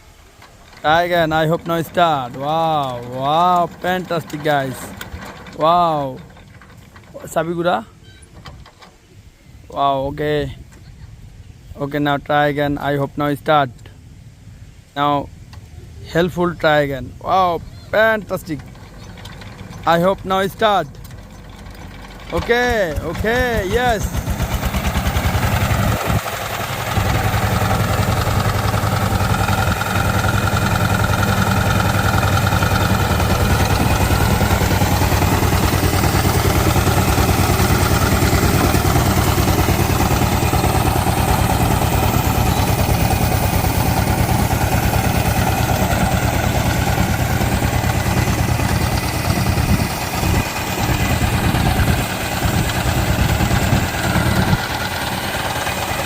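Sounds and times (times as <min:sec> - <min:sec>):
diesel engine idling: 0:00.0 - 0:08.0, 0:17.4 - 0:56.0.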